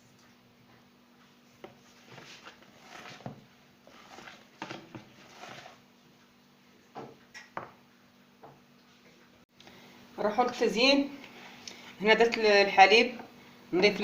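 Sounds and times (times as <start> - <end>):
utensil scraping batter in bowl: 1.7 - 5.8.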